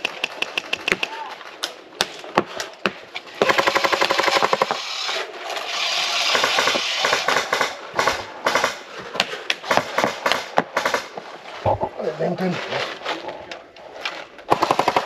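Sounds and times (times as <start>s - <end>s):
airsoft guns firing: 0.0s - 5.1s, 6.0s - 11.2s, 14.5s - 15.0s
hiss: 4.6s - 7.4s.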